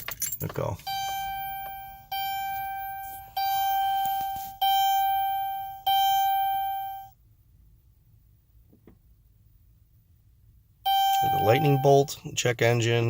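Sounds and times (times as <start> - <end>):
dashboard warning chime: 0.2 - 7.2, 10.9 - 12.3.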